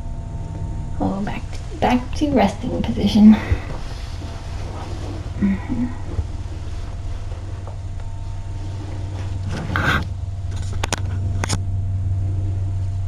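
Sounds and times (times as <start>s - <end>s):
cat purring: 0.8s - 7.6s.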